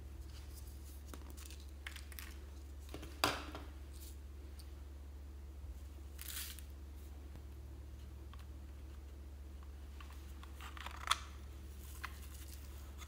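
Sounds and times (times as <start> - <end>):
low steady hum: 0.0 - 13.0
soft crinkling of small pieces: 0.1 - 4.8, 8.0 - 13.0.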